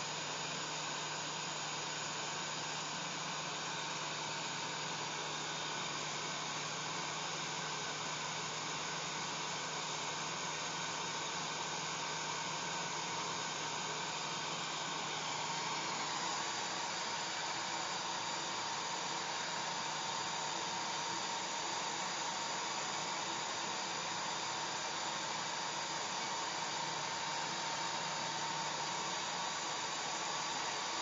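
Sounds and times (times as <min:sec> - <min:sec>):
hair dryer running: 0:09.7 - 0:31.0.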